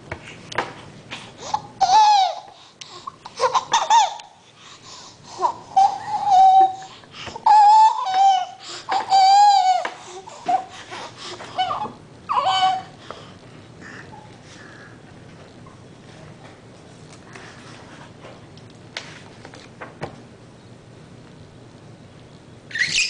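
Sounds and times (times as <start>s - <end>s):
baby squealing: 5.7s - 9.8s, 11.6s - 13.0s, 22.7s - 23.0s.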